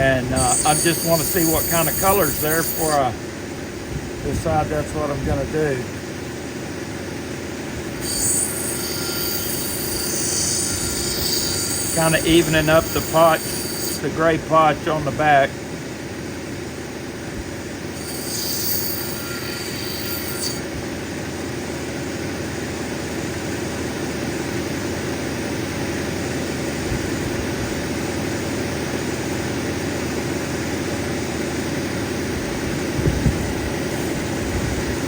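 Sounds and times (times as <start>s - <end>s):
grinding wheel grinding stone: 0.0s - 3.2s, 7.8s - 15.1s, 17.9s - 20.7s
high squeal: 0.3s - 3.1s, 8.0s - 14.1s, 18.0s - 20.7s.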